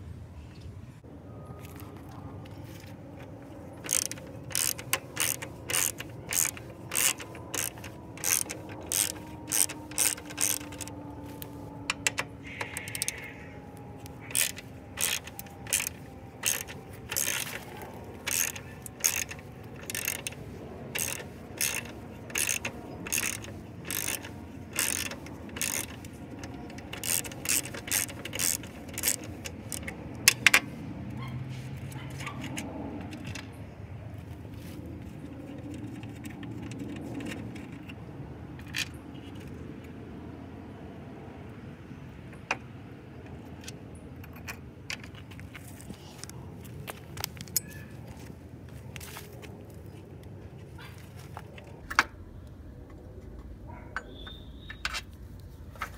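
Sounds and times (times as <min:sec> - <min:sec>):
ratchet wrench clicking: 0:03.2 - 0:13.3, 0:14.0 - 0:30.7.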